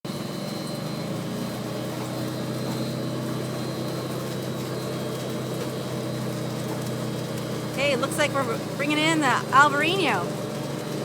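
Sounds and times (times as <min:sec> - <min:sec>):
machinery humming: 0:07.0 - 0:11.0.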